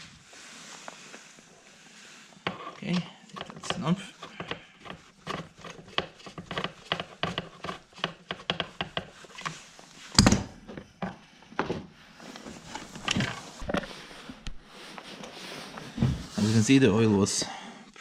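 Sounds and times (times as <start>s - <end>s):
handling clicks and scrapes: 2.4s - 11.2s, 12.2s - 16.6s
heavy thump: 15.9s - 16.4s.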